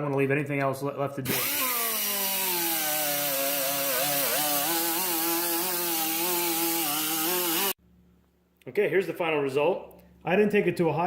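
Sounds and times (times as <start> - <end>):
electric power tool motor: 1.3 - 7.8.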